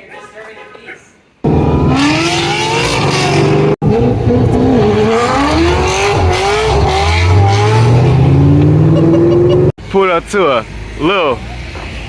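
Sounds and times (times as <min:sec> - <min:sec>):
car engine revving: 0:01.4 - 0:09.8.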